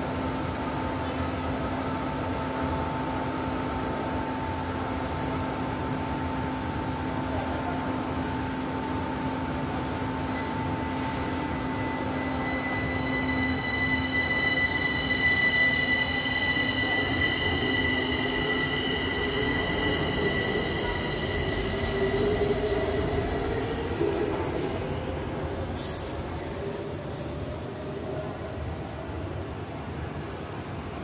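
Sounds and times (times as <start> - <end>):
train high whine: 0.0 - 31.0
train rushing noise: 10.8 - 31.0.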